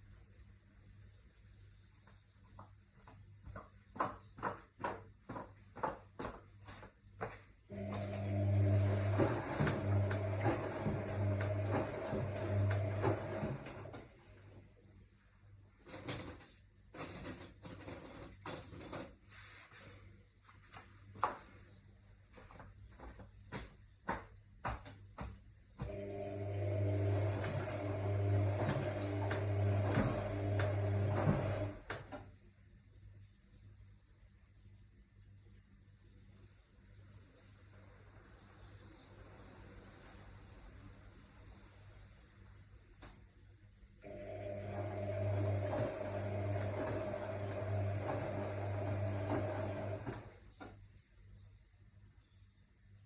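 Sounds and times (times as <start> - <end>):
washing machine humming: 7.7 - 15.0, 25.8 - 32.4, 44.0 - 50.6.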